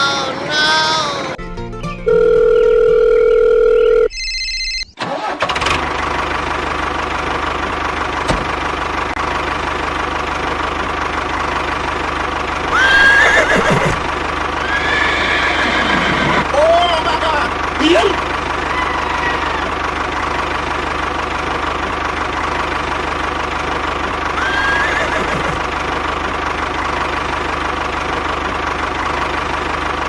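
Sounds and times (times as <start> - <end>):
engine running with low hum: 5.1 - 30.0
rising call: 12.7 - 16.5, 18.5 - 20.4, 24.4 - 25.6.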